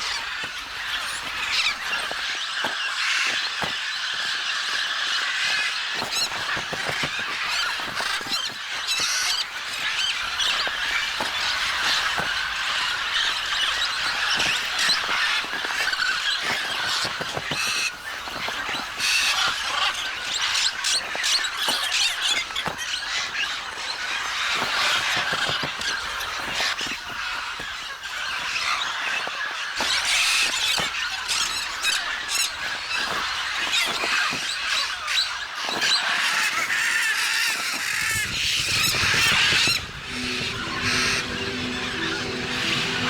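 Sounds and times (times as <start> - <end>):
flock of macaws calling: 35.0 - 43.0.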